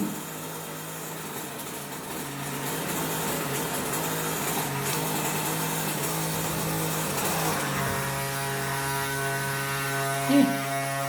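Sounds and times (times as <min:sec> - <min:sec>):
washing machine motor humming: 0:00.0 - 0:11.0.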